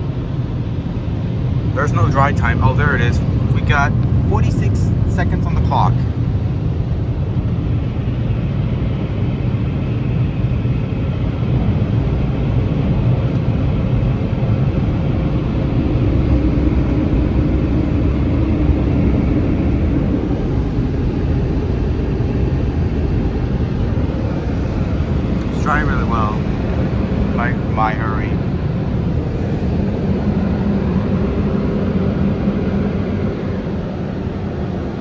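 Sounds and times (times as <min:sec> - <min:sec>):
air dryers blowing onto a car: 0:23.6 - 0:35.0.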